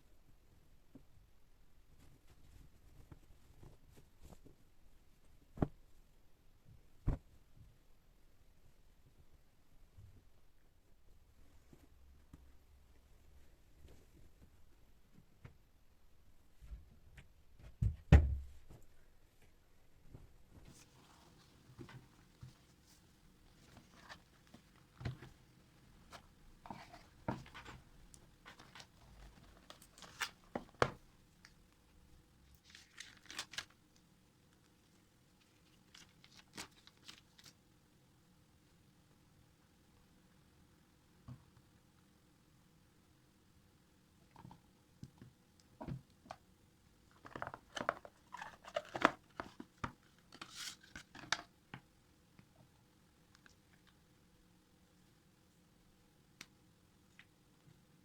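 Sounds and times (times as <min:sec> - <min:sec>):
rustling of household things: 0:20.7 - 0:34.1, 0:47.1 - 0:51.5.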